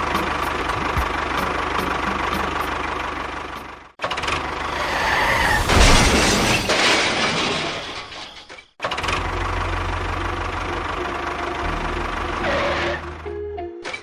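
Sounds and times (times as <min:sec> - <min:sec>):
low engine hum: 0:00.0 - 0:04.9, 0:09.1 - 0:13.6
engine clattering: 0:00.0 - 0:13.3.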